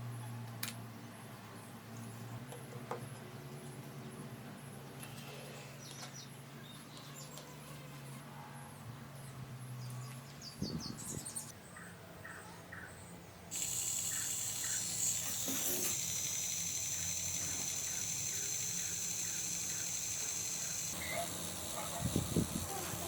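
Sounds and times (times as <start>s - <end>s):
bird chirping: 9.8s - 22.4s
steady hiss: 13.5s - 23.0s.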